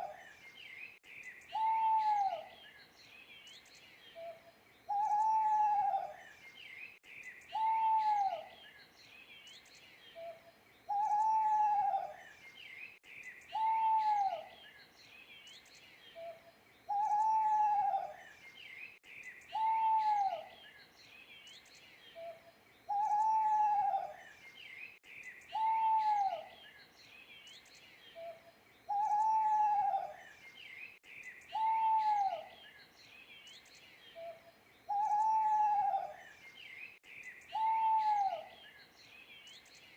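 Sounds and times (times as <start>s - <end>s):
small birds chirping: 0.0s - 39.9s
owl hooting: 1.5s - 2.5s, 4.2s - 6.2s, 7.5s - 8.5s, 10.2s - 12.2s, 13.5s - 14.5s, 16.2s - 18.2s, 19.5s - 20.5s, 22.2s - 24.2s, 25.5s - 26.5s, 28.2s - 30.2s, 31.5s - 32.6s, 34.2s - 36.2s, 37.5s - 38.6s.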